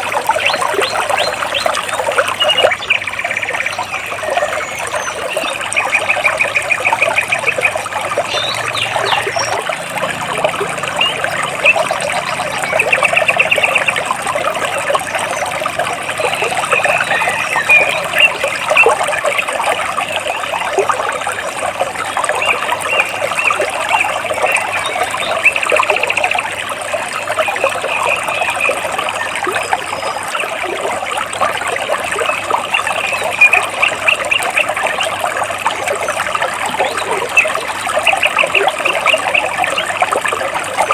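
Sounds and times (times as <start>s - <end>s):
stream trickling over rocks: 0.0s - 40.9s
birds chirping in trills: 0.4s - 19.5s.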